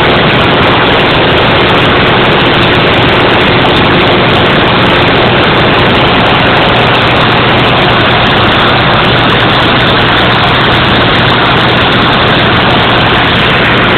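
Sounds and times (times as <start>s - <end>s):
constant low hum: 0.0s - 13.9s
water jetting roar: 0.0s - 13.9s.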